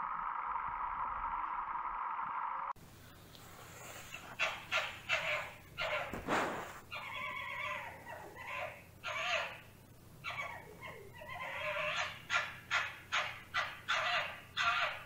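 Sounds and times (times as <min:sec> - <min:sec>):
fox calling: 0:03.9 - 0:15.0.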